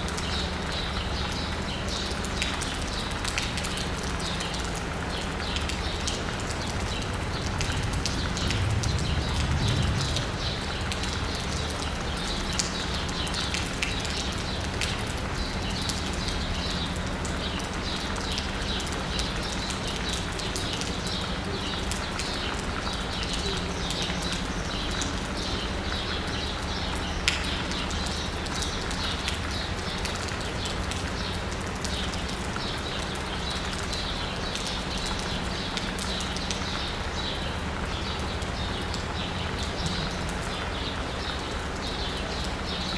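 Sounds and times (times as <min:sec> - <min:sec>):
rain pattering on asphalt: 0:00.0 - 0:42.9
low rumble: 0:06.8 - 0:12.0.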